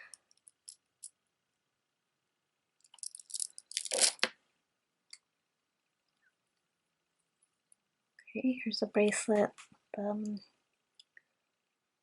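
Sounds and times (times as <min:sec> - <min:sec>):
packaging crinkling rustle: 0:02.9 - 0:04.3.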